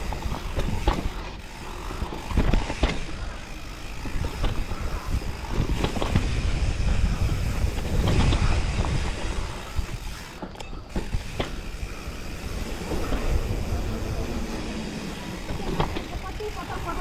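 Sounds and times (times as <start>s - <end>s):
bike rattling knocks: 0.0s - 17.0s
bike tyre noise: 0.0s - 17.0s
wind rushing on microphone: 3.9s - 10.3s, 11.0s - 16.3s.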